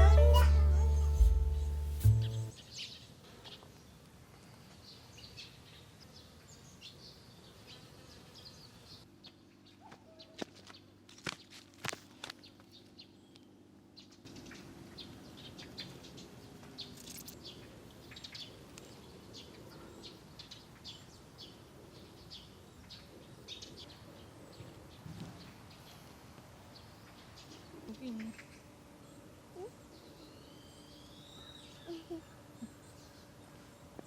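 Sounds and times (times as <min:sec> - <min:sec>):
outdoor background noise: 0:00.0 - 0:34.0
small birds chirping: 0:26.7 - 0:34.0.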